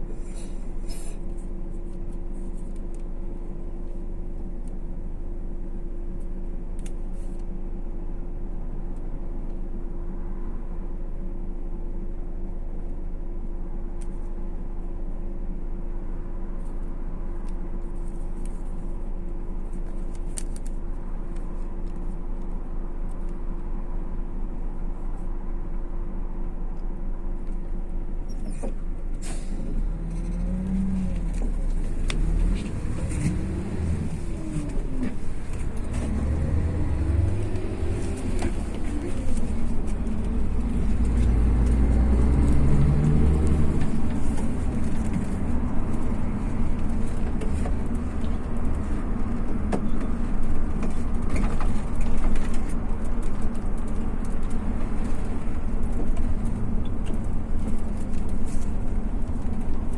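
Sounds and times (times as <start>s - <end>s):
bus engine drone: 0.0s - 59.9s
road rumble: 0.0s - 59.9s.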